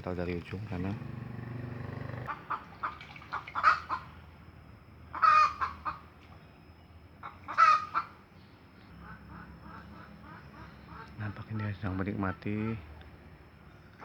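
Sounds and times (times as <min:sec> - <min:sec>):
chicken calling: 0:02.0 - 0:04.1, 0:05.1 - 0:06.1, 0:07.2 - 0:08.2.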